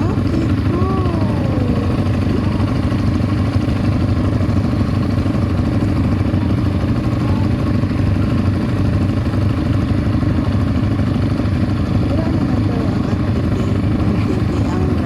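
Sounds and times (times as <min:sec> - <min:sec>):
atv engine droning: 0:00.0 - 0:15.0.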